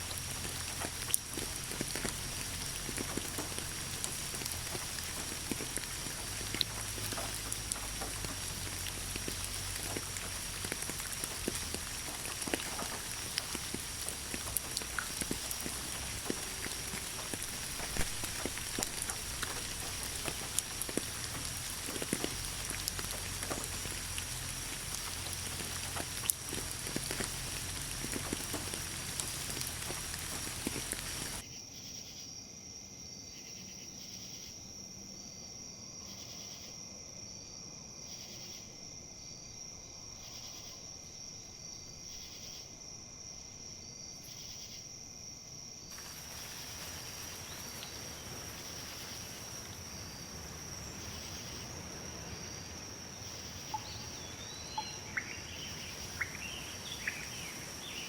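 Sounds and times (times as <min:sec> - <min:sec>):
insect trilling: 0:00.0 - 0:31.4, 0:45.9 - 0:58.0
rain pattering: 0:00.0 - 0:31.4, 0:45.9 - 0:58.0
wind in leaves: 0:00.0 - 0:31.4, 0:41.6 - 0:58.0
bird chirps: 0:53.6 - 0:58.0.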